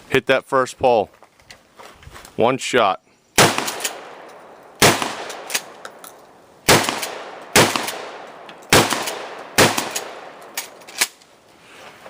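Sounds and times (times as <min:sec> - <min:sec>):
gunshots with echo: 0:03.4 - 0:05.8, 0:06.6 - 0:10.6.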